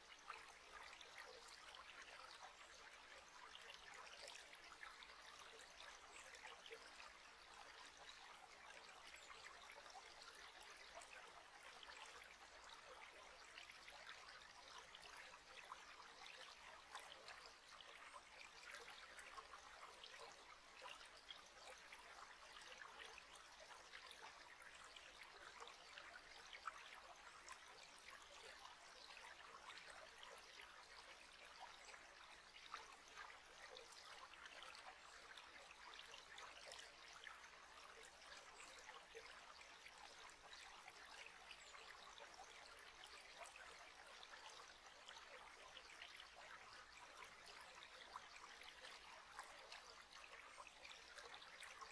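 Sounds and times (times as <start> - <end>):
small stream trickling: 0.0 - 51.9.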